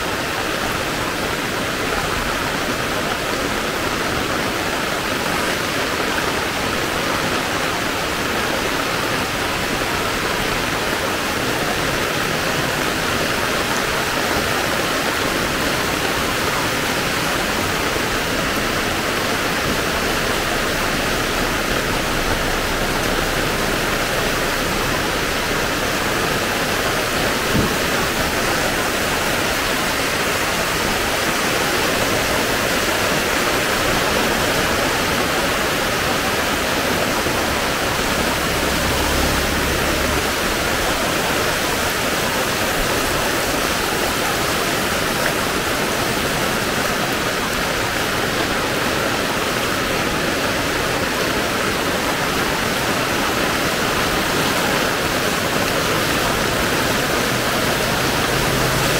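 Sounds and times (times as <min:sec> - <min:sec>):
heavy rain falling: 0:00.0 - 0:58.9.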